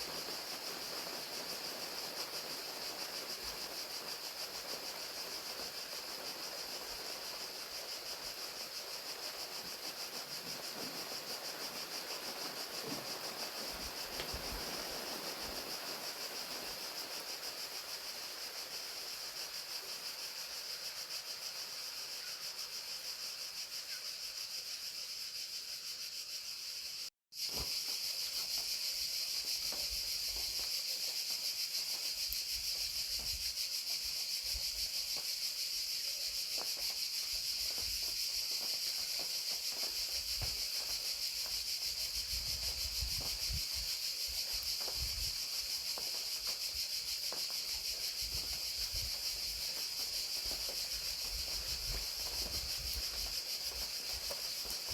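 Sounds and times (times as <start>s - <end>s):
raindrops pattering: 0.0s - 19.5s, 36.2s - 54.9s
crickets trilling: 0.0s - 54.9s.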